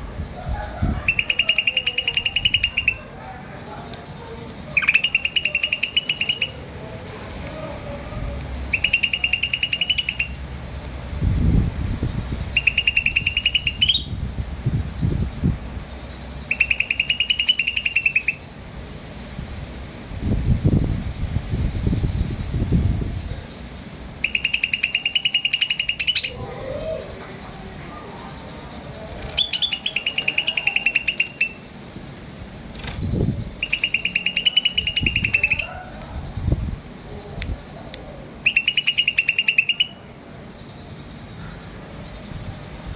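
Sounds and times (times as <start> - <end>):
bird trilling: 0.6 - 3.1, 4.7 - 6.6, 8.7 - 11.3, 12.0 - 14.5, 16.4 - 18.5, 24.1 - 27.2, 28.0 - 31.7, 33.1 - 40.0
bird chirping in fast runs: 8.7 - 10.4, 12.1 - 14.4, 16.5 - 18.4, 24.2 - 26.3, 33.2 - 35.7, 38.4 - 40.0
sharp click: 32.7 - 33.1.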